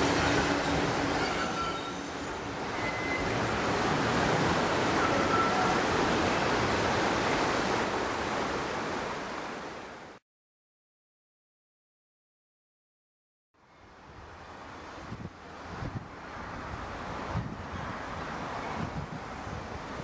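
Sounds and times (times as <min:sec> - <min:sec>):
train rumbling past: 0:00.0 - 0:07.1
faint wheel squeals: 0:01.0 - 0:03.4.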